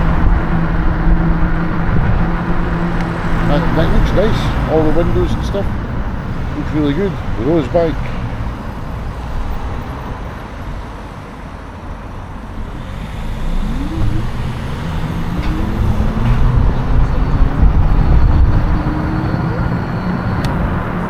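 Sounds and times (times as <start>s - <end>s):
low traffic rumble: 0.0s - 21.0s
vehicle engine accelerating past: 12.4s - 21.0s.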